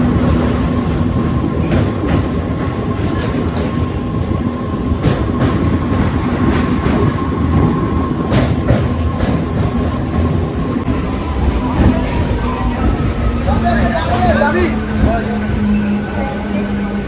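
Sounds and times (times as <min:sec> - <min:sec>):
electric train rumble: 0:00.0 - 0:17.0.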